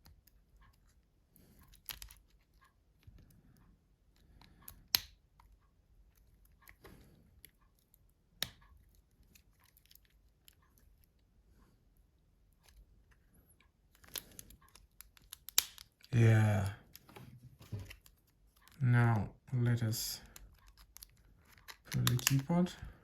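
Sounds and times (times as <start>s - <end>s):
light plastic clicks: 0.0s - 3.4s, 4.1s - 11.1s, 12.6s - 16.1s, 20.2s - 22.6s
sharp plastic clicks: 1.4s - 3.3s, 4.1s - 5.6s, 13.9s - 16.1s, 20.2s - 22.6s
plastic parts scraping: 16.9s - 18.8s, 20.3s - 22.5s.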